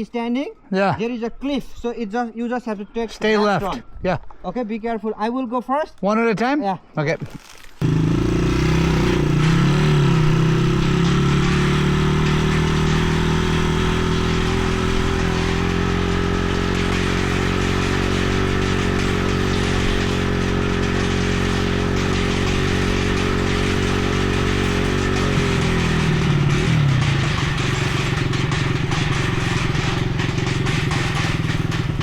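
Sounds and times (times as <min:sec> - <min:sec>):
dirt bike engine running: 0:07.3 - 0:32.0.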